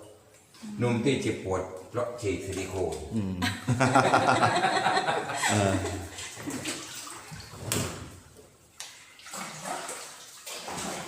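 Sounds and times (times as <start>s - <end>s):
paddle splashing in water: 6.1s - 8.2s, 8.9s - 11.0s.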